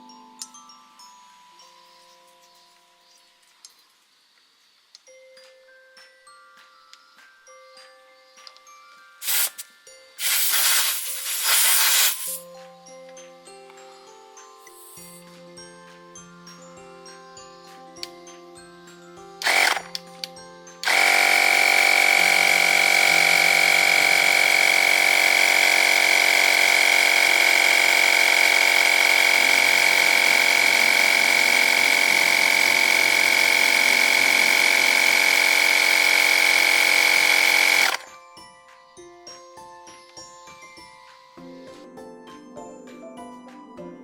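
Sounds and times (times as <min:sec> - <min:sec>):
air compressor whining: 0:09.2 - 0:09.6, 0:10.2 - 0:12.4, 0:19.4 - 0:20.0, 0:20.8 - 0:38.1.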